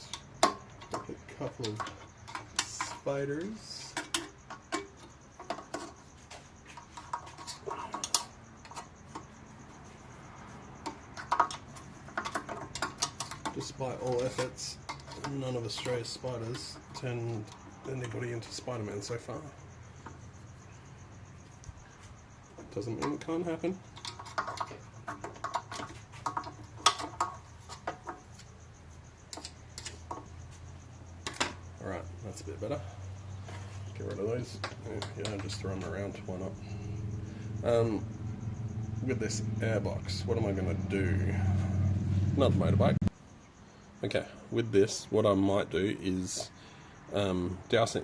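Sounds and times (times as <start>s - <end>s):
small hard parts tapping together: 0.0s - 10.0s, 10.8s - 19.1s, 21.5s - 28.6s, 29.3s - 30.5s, 31.2s - 31.7s, 34.4s - 36.4s.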